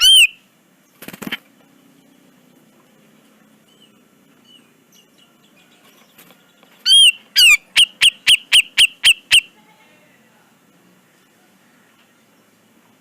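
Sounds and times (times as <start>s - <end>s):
bulbul calling sharp notes: 6.8s - 9.6s.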